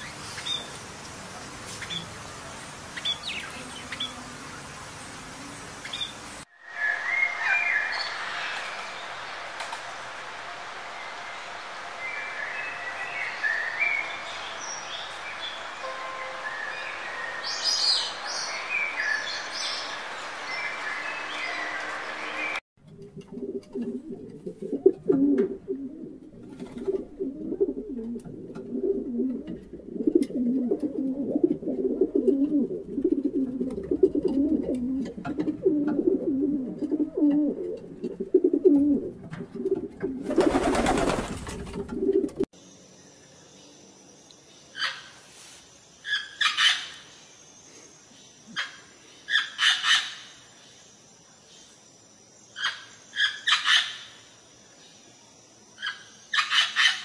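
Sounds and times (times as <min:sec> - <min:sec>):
pigeons cooing: 0:23.0 - 0:42.5.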